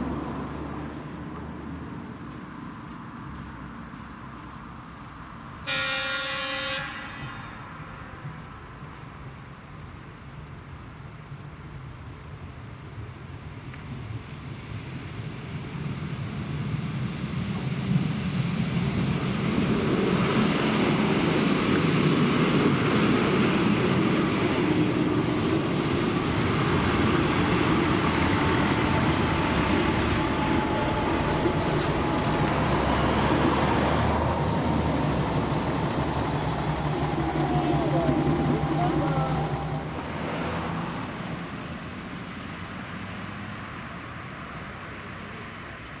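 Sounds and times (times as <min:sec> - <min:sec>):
wheels rumbling on rails: 0:00.0 - 0:46.0
diesel railcar engine running: 0:13.9 - 0:41.4.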